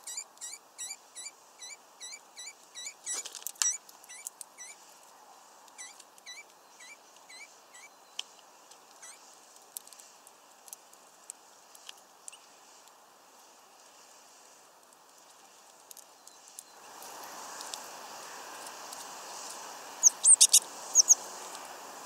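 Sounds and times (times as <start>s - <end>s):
small bird calling: 0.0s - 4.8s, 5.8s - 8.0s, 9.0s - 9.3s, 20.0s - 21.3s.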